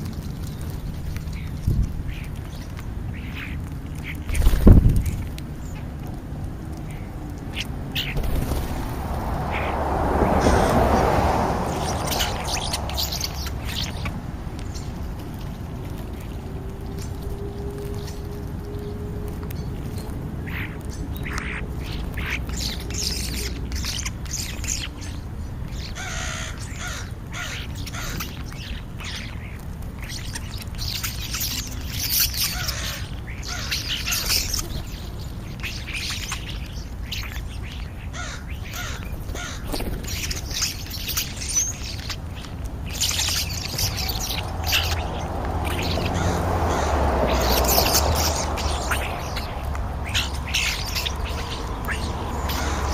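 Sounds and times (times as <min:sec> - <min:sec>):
steady low rumble: 0:00.0 - 0:23.4, 0:41.2 - 0:52.9
birds calling: 0:00.0 - 0:52.9
crows cawing: 0:09.5 - 0:12.6, 0:26.0 - 0:28.2, 0:32.5 - 0:34.3, 0:38.1 - 0:39.7, 0:45.9 - 0:49.4, 0:52.4 - 0:52.9.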